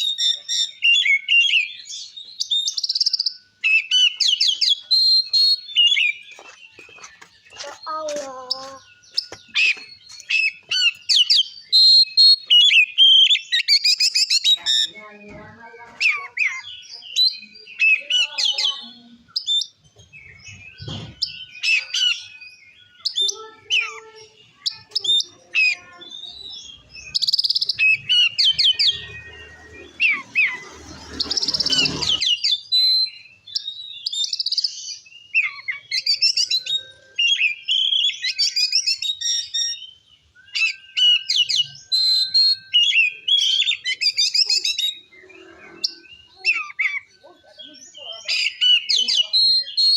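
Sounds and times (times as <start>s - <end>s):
magpie-robin singing: 0.0s - 49.9s.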